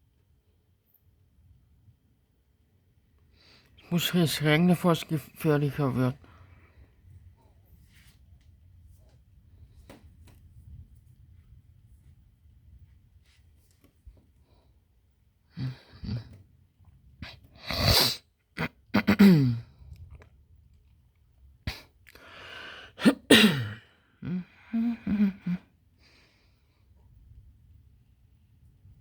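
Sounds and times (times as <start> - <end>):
person sneezing: 17.2 - 19.6, 22.9 - 24.4
breathy vocal sounds: 24.2 - 25.6.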